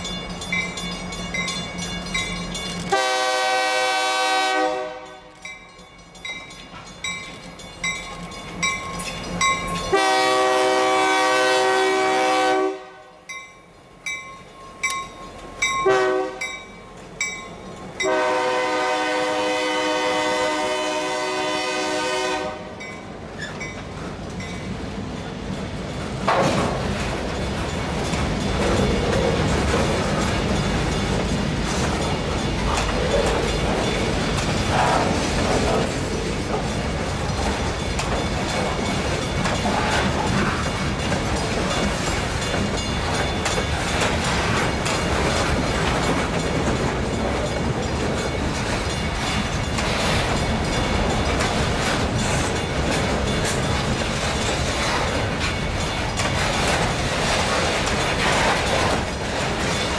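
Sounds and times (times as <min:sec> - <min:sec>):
steel wheels running on rails: 0:00.0 - 0:59.9
wheels clicking over rail joints: 0:22.8 - 0:59.9.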